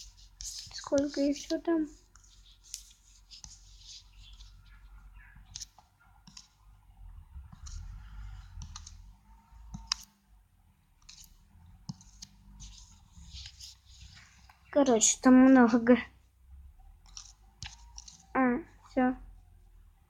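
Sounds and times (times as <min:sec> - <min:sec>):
scratchy rustles: 0:00.0 - 0:05.8, 0:11.0 - 0:14.7.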